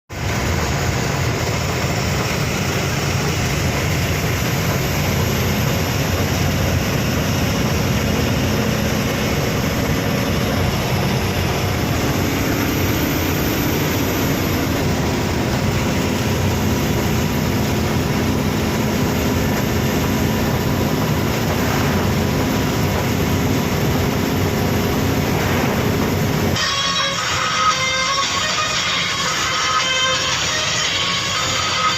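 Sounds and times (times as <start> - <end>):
road noise roar: 0.1 - 31.9
truck engine running: 0.1 - 31.9.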